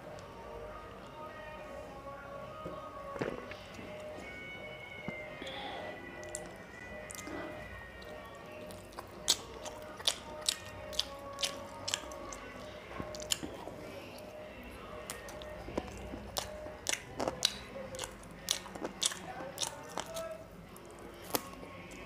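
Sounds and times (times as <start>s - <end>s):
soft background music: 0.0s - 22.0s
close chewing and mouth smacks: 6.2s - 22.0s.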